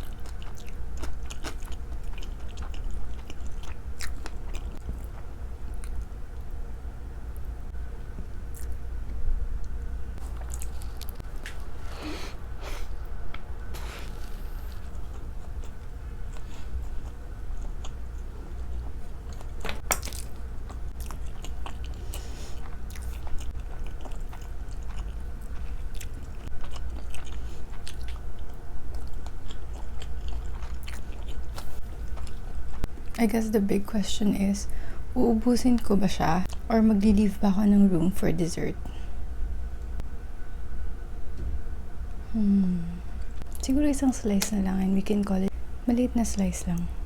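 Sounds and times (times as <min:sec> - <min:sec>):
wet chewing and biting: 0:00.0 - 0:06.1, 0:13.3 - 0:33.0
steady low hum: 0:00.0 - 0:47.0.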